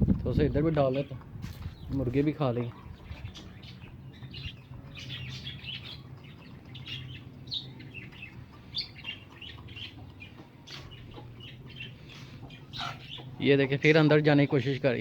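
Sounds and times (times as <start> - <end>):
small birds chirping: 0.3 - 15.0.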